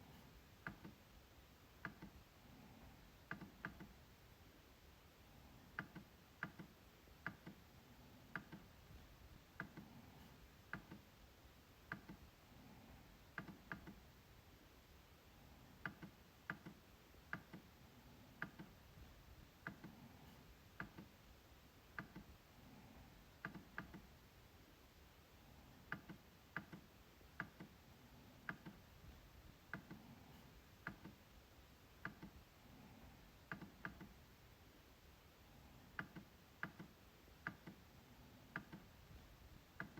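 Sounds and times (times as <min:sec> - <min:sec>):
trackpad clicking: 0:05.8 - 0:07.6, 0:18.4 - 0:18.8.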